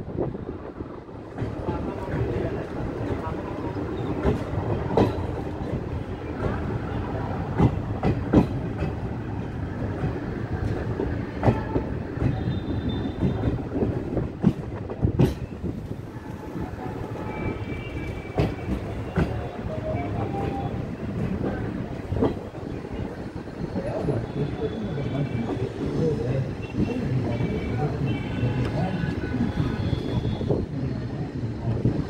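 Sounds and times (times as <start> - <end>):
train running rumble: 0.0 - 32.0.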